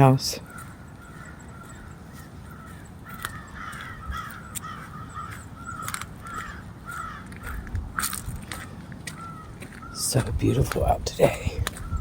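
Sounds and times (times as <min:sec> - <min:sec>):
birds calling harshly: 0:00.0 - 0:12.0
sharp crunches: 0:03.1 - 0:09.9.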